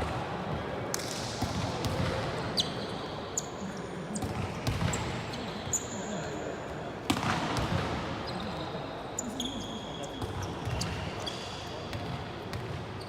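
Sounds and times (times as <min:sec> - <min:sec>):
shoe squeaks: 0:02.6 - 0:03.6, 0:05.3 - 0:06.1, 0:08.2 - 0:11.7.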